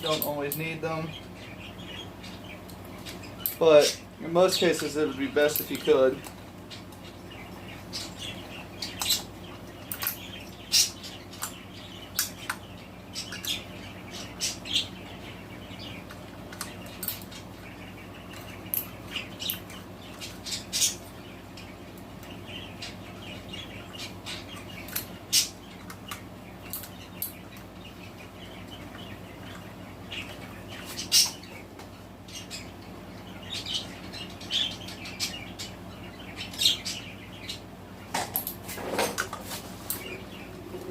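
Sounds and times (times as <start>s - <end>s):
pet birds chirping and squawking: 0.0s - 40.9s
steady low hum: 0.0s - 40.9s.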